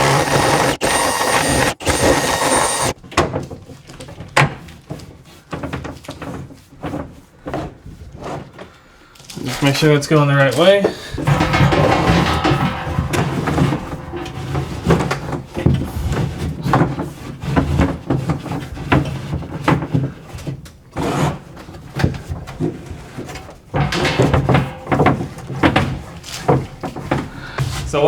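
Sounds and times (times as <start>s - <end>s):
knocks and scraping on wood: 11.3s - 19.9s, 22.0s - 28.0s.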